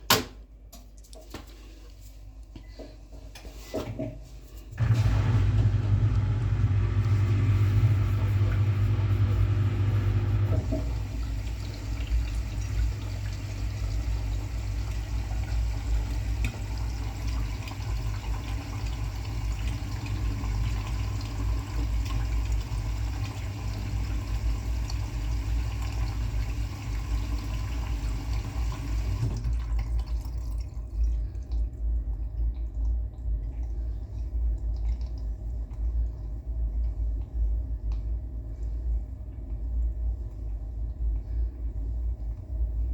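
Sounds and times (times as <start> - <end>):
washing machine low hum: 1.5 - 42.9
water rushing into washing machine: 4.8 - 35.6.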